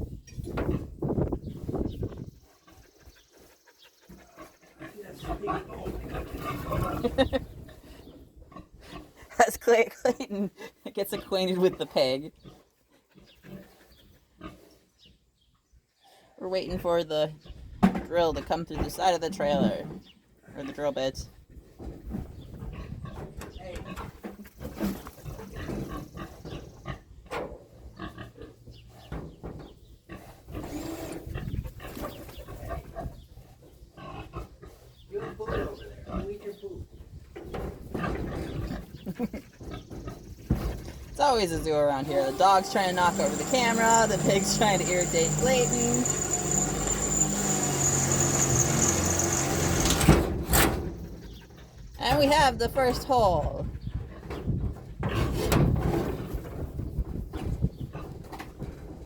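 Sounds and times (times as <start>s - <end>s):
pig grunting: 4.1s - 7.4s, 34.0s - 36.6s
electric drill whining: 42.0s - 50.2s
drill knock and rasp: 42.0s - 51.1s.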